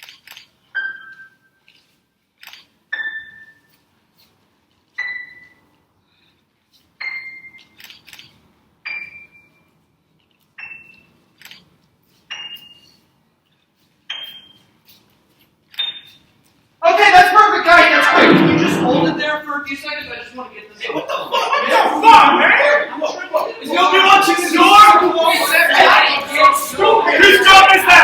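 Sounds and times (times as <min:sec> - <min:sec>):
small clicks: 0:00.0 - 0:00.5, 0:01.7 - 0:02.7, 0:11.4 - 0:11.7.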